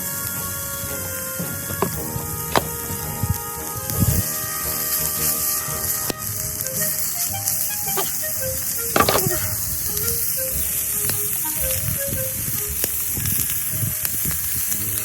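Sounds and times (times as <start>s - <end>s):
light background music: 0.0s - 15.0s
meat sizzling on a grill: 7.0s - 15.0s.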